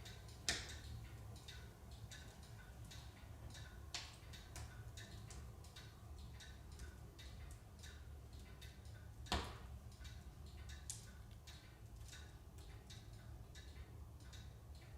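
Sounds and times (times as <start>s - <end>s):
firewood crackling and popping: 0.0s - 3.1s, 3.9s - 7.6s, 8.3s - 10.1s, 10.7s - 12.4s.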